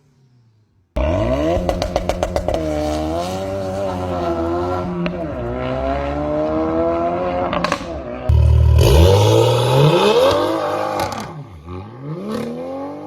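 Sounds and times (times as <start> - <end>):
exhaust pops: 1.0 - 6.3
car engine accelerating: 1.0 - 13.0.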